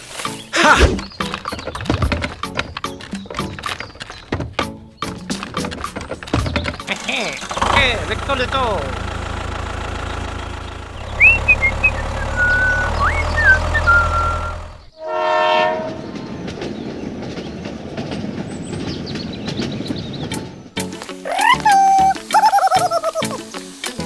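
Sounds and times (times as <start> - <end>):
low engine hum: 6.7 - 15.0
whistle-like pitch glides: 11.2 - 14.8
short horn blast: 14.0 - 16.1.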